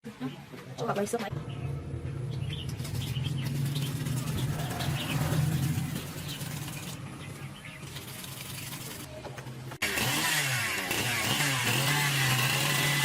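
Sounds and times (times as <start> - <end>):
low engine-like hum: 1.3 - 7.5
small birds chirping: 1.3 - 9.2.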